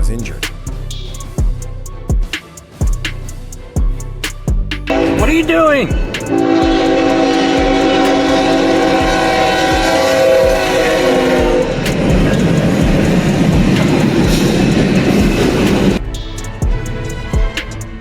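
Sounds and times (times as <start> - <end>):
train horn chord: 4.9 - 15.6
train running past: 4.9 - 18.0.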